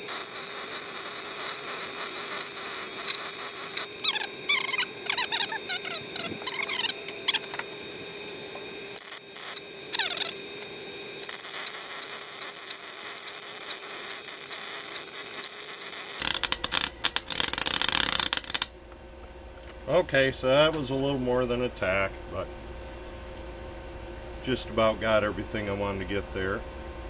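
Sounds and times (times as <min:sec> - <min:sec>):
short squeaky chirps: 0:00.0 - 0:07.7, 0:09.0 - 0:10.4
steady hum: 0:00.0 - 0:17.6
welder arc hissing and crackling: 0:00.0 - 0:18.8.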